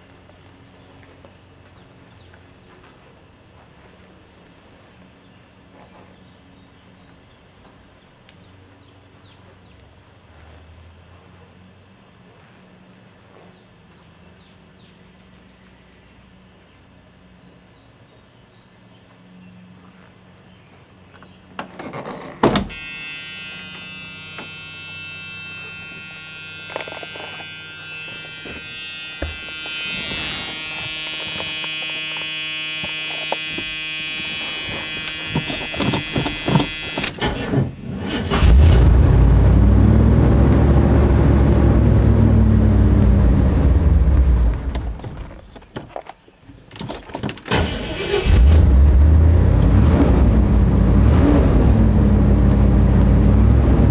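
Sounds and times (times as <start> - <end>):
buzzing warning tone: 22.6 - 45.0
car engine starting and revving: 29.3 - 45.3, 47.5 - 53.9.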